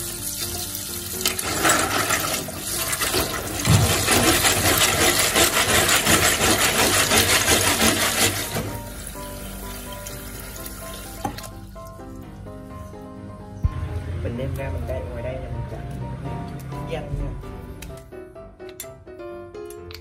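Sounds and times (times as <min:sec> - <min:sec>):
water splashing and running: 0:00.0 - 0:08.8.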